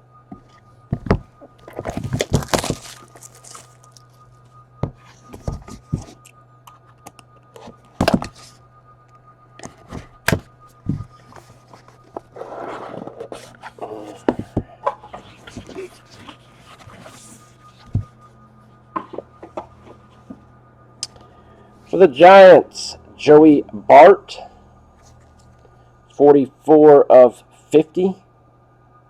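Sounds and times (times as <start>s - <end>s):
low electrical hum: 0.0s - 29.0s
card rustle: 1.6s - 4.1s.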